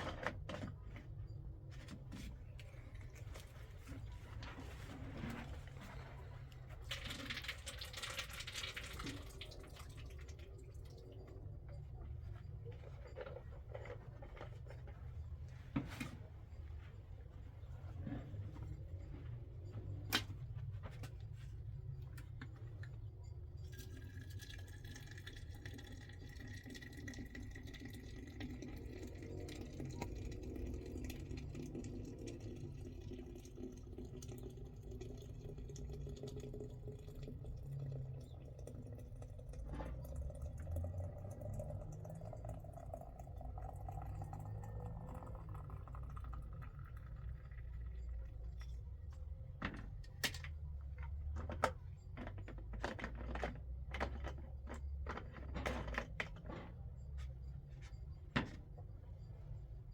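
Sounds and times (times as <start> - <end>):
water running into a container: 5.4 - 11.5, 23.7 - 48.5.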